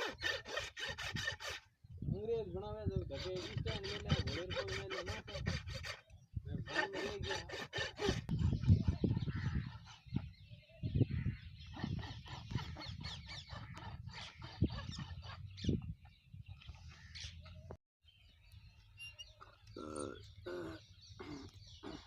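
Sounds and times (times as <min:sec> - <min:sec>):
rasp filing hoof: 0:00.0 - 0:01.7, 0:03.0 - 0:09.1.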